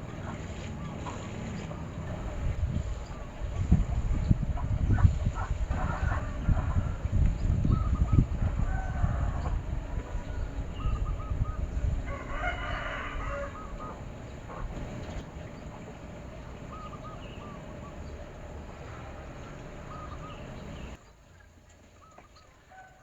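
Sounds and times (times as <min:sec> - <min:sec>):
chickens calling: 0:00.0 - 0:21.0
low rumble with thumps: 0:00.0 - 0:21.0
rooster crowing faintly: 0:05.7 - 0:18.0, 0:22.7 - 0:23.0.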